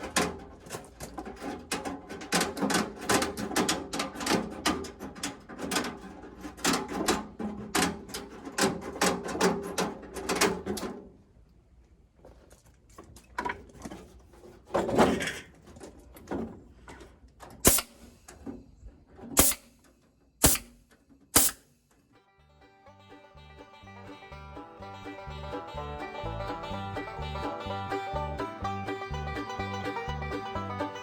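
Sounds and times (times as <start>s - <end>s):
staple gun snaps: 17.7s - 18.1s, 19.4s - 19.7s, 20.4s - 20.8s, 21.4s - 21.6s.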